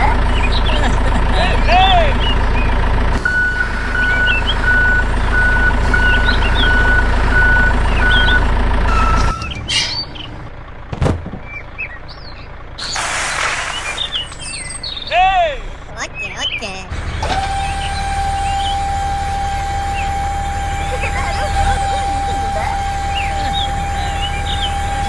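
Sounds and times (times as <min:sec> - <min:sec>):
birds chirping: 0:00.0 - 0:25.0
vehicle motor humming: 0:00.0 - 0:25.0
reversing beeper: 0:01.6 - 0:10.7, 0:14.1 - 0:25.0
thump: 0:10.9 - 0:11.5.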